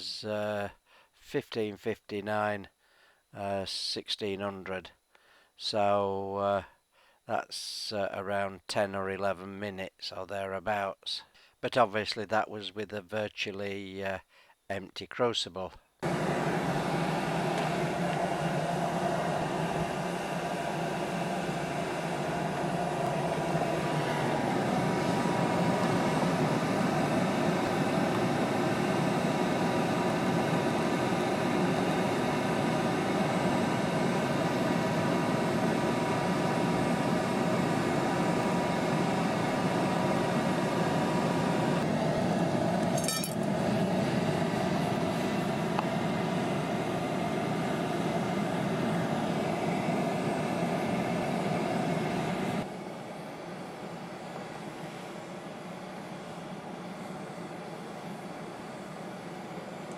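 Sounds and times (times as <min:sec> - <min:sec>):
furnace blower roaring: 0:16.0 - 0:59.9
motor whine: 0:16.0 - 0:59.9
metal clink: 0:42.9 - 0:43.4.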